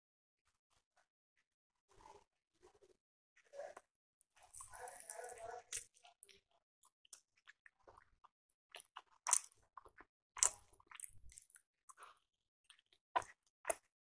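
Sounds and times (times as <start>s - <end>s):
person biting and chewing food: 7.1s - 13.9s.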